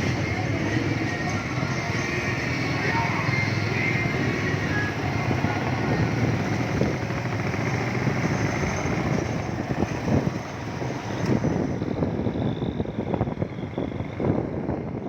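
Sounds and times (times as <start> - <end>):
motorcycle engine running: 0.0 - 12.0
road and wind noise: 0.0 - 15.0.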